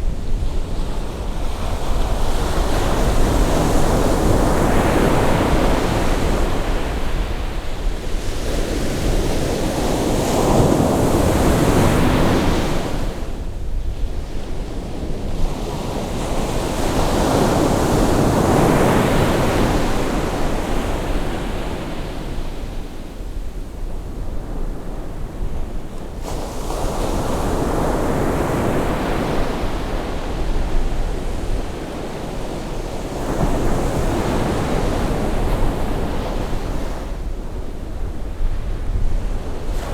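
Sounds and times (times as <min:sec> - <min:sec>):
wind on microphone: 0:00.0 - 0:39.9
sea waves breaking on shore: 0:14.5 - 0:23.1, 0:26.1 - 0:37.5.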